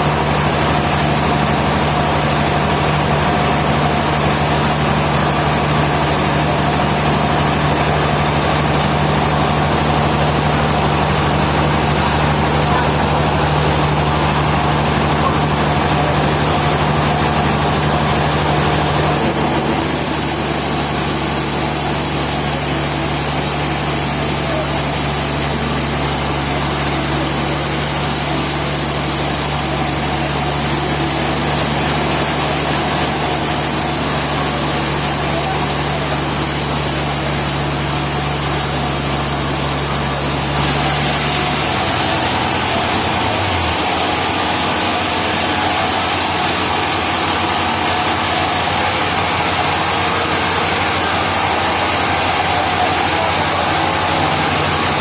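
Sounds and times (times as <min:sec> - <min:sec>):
sawmill engine running: 0:00.0 - 0:55.0
hiss: 0:19.7 - 0:40.8.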